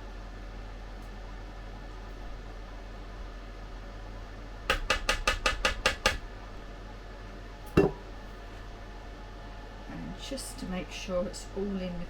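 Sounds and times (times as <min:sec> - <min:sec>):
utensil knocking against dish: 0:04.7 - 0:06.2, 0:07.8 - 0:08.0.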